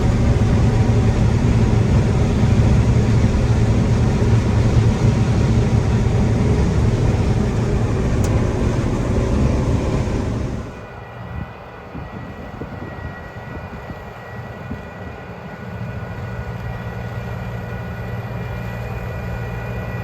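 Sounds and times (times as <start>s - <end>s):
combine harvester engine drone: 0.0s - 20.0s.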